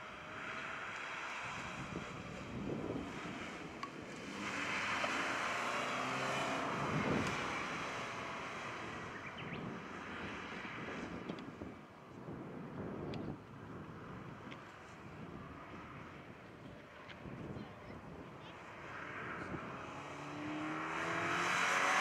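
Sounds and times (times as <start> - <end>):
car engine revving: 0.0 - 11.4, 18.7 - 22.0.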